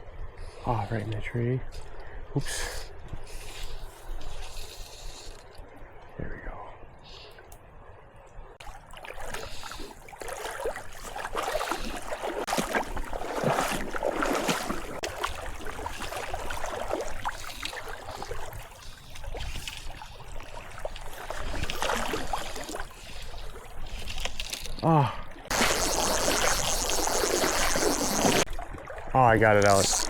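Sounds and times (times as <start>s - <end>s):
river water splashing: 8.6s - 30.0s.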